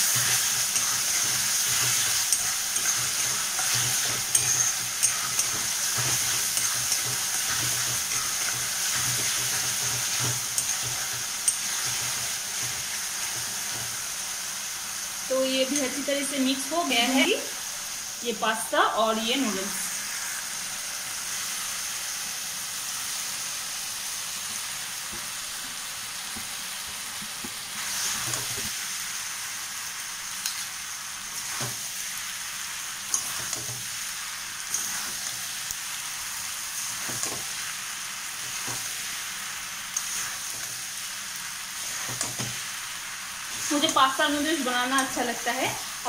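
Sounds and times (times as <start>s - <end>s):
metal spatula scraping a wok: 0.0s - 13.9s, 34.7s - 35.4s
noodles sizzling in a wok: 0.0s - 46.0s.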